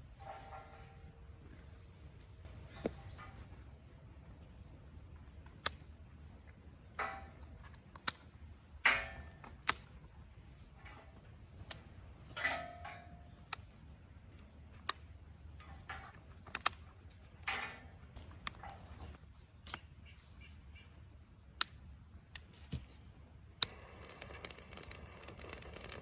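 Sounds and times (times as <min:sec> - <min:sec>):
rustling fire flare-ups: 0:23.6 - 0:26.0
wood fire crackling and popping: 0:23.6 - 0:26.0.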